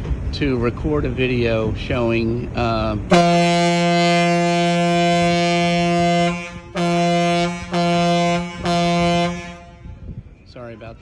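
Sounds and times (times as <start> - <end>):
ship horn blasts: 3.1 - 10.1.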